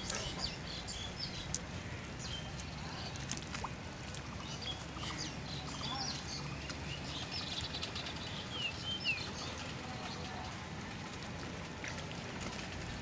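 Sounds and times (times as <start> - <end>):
small birds whistling chirps: 4.4 - 9.5.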